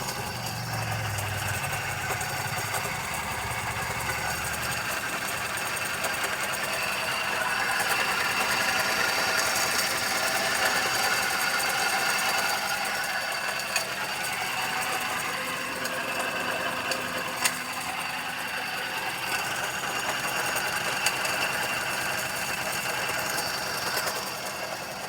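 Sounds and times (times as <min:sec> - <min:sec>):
sharp engine clicks: 0:00.0 - 0:12.6
car engine ticking clatter: 0:00.0 - 0:25.0.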